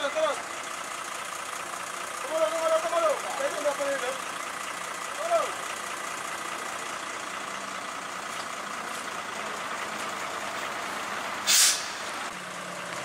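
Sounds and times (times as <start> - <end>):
diesel engine running: 0.0 - 13.0
loud hiss burst: 11.4 - 12.1.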